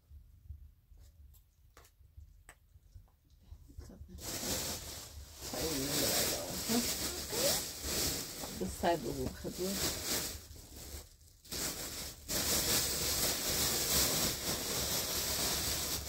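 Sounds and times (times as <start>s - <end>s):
plastic bag crinkling: 4.2s - 16.0s.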